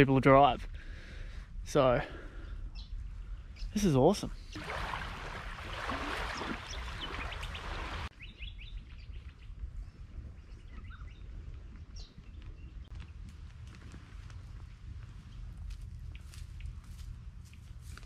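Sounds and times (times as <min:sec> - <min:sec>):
birds chirping: 0:02.1 - 0:13.2.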